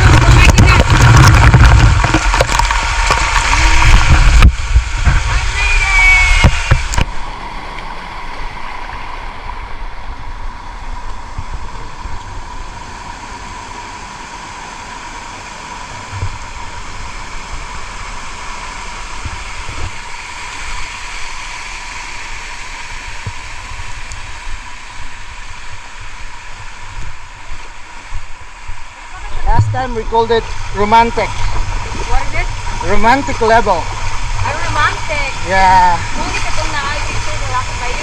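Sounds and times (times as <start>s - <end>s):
low thumps on microphone: 0.0s - 5.4s, 29.4s - 30.6s
waterfall rushing: 0.0s - 38.0s.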